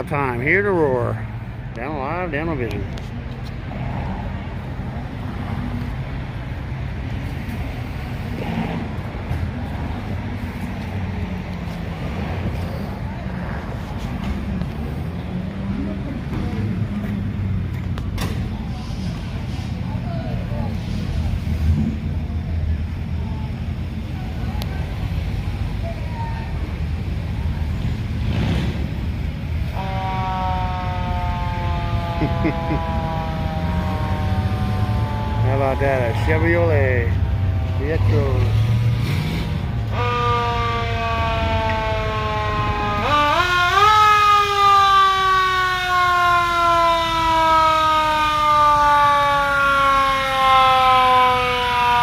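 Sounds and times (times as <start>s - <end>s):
car engines rumbling: 0.0s - 52.0s
siren wailing: 29.8s - 38.5s, 39.8s - 52.0s.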